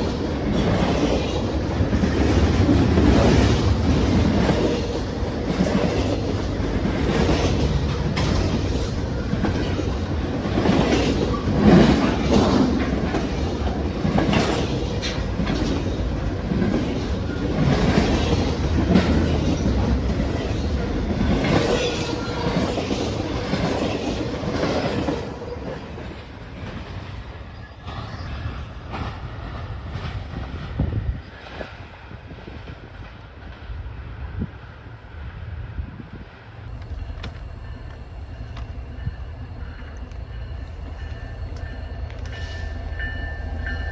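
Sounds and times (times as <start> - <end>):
train wheels clacking over rail joints: 0.0 - 31.7
train rumble: 0.0 - 43.9.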